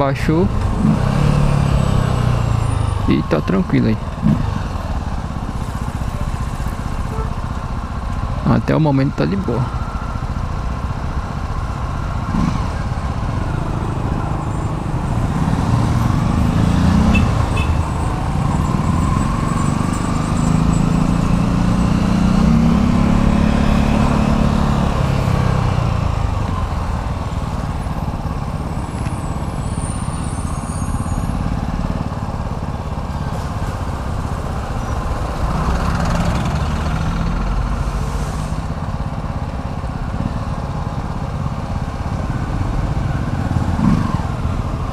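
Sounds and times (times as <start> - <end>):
road traffic: 0.0 - 44.9
heavy vehicle engine passing: 9.4 - 44.9.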